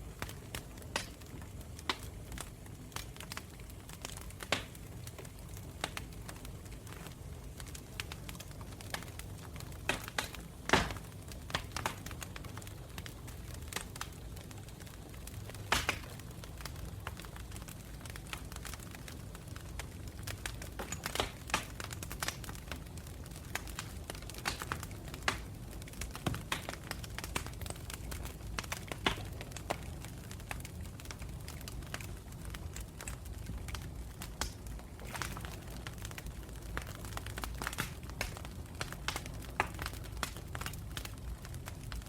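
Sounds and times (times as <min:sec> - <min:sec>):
low rumble of flames: 0:00.0 - 0:42.0
wood crackling and popping: 0:00.0 - 0:42.0.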